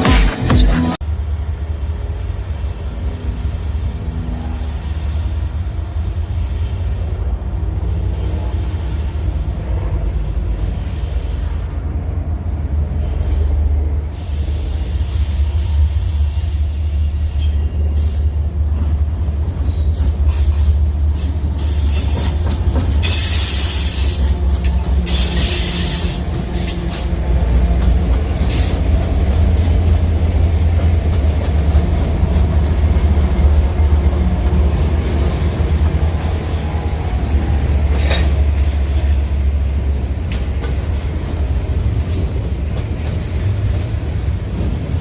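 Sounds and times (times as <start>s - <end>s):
freight train rumbling past: 0.8s - 45.0s
faint thin squeal: 36.2s - 41.4s.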